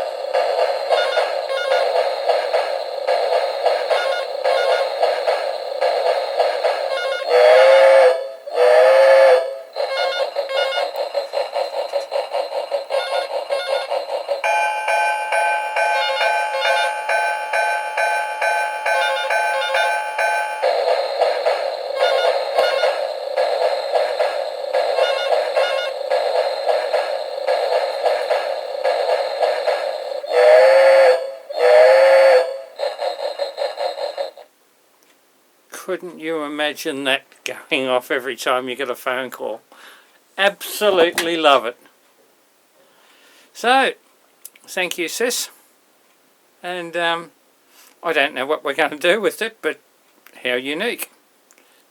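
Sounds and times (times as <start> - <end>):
steam locomotive chuffing ringtone: 0.0 - 34.5
steam whistle toots: 6.8 - 10.9, 21.9 - 23.1, 25.0 - 26.0, 30.2 - 32.8.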